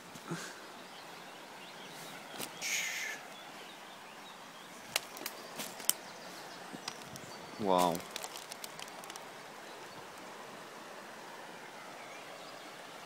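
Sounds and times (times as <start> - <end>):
outdoor hiss: 0.0 - 13.0
scratchy rustle underfoot: 5.0 - 9.2
debris snapping underfoot: 6.8 - 9.2.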